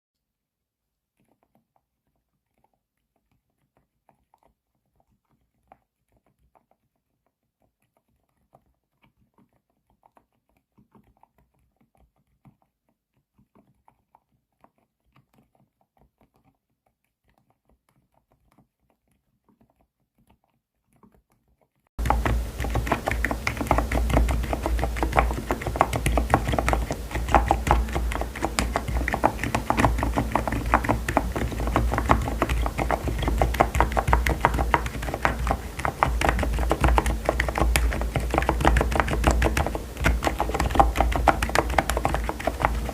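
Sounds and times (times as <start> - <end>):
keyboard typing: 22.0 - 42.9
low steady hum: 22.0 - 42.9.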